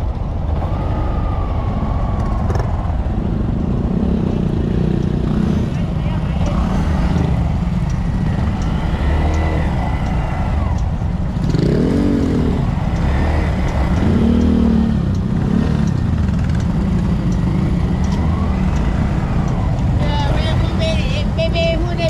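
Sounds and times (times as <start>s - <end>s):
low rumble: 0.0s - 22.0s
motorcycle engines running: 0.0s - 22.0s.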